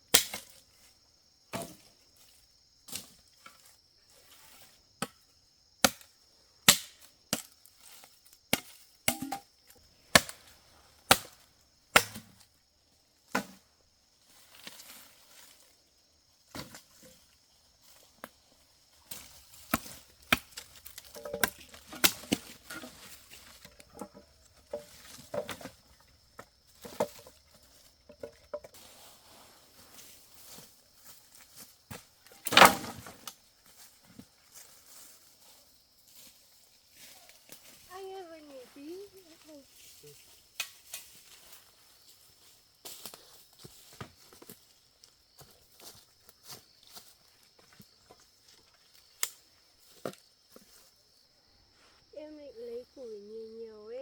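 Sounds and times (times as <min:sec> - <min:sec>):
firewood chopping: 0:06.7 - 0:07.5, 0:08.5 - 0:09.5, 0:10.1 - 0:10.5, 0:11.1 - 0:12.4, 0:19.1 - 0:25.8, 0:32.3 - 0:33.2.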